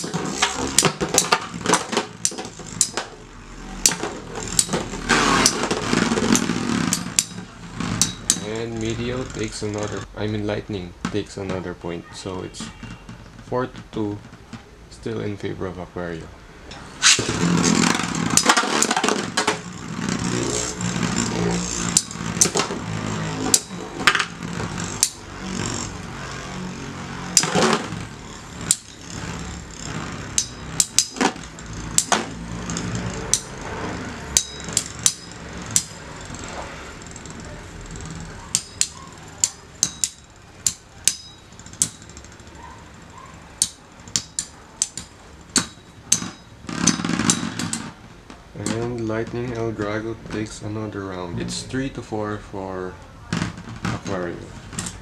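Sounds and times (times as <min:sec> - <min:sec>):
metal clacks of tops clashing: 0:00.0 - 0:10.1, 0:16.7 - 0:48.8
spinning tops whirring: 0:00.0 - 0:14.8, 0:16.0 - 0:55.0.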